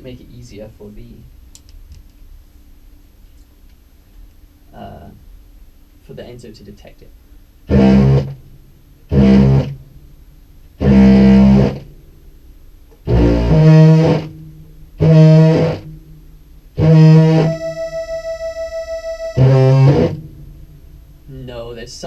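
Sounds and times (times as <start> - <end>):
distorted low clarinet notes: 16.9 - 20.2
pulsing synth tone: 17.2 - 20.2.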